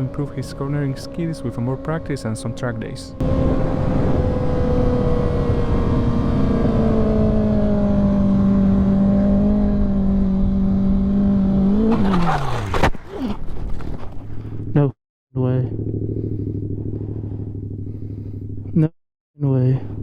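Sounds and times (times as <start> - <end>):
motorcycle engine running: 15.6 - 18.8.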